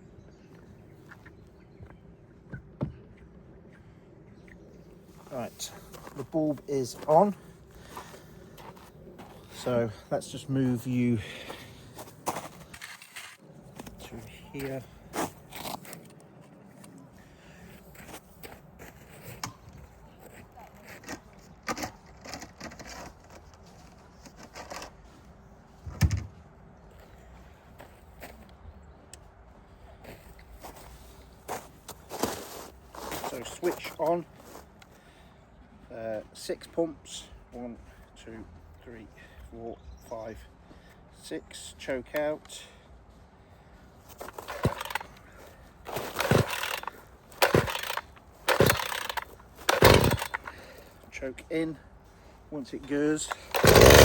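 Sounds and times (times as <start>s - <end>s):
chainsaw handling clicks and scrapes: 12.3s - 14.0s, 20.7s - 25.0s, 44.1s - 51.0s, 53.2s - 54.0s
chainsaw recoil starter pulls: 44.1s - 45.2s, 45.9s - 50.8s, 53.2s - 54.0s.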